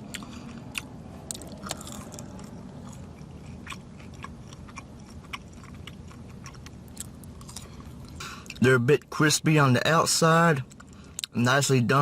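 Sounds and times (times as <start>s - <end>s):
chewing crisp fries: 0.0s - 8.7s, 10.5s - 11.5s
low steady hum: 0.0s - 12.0s.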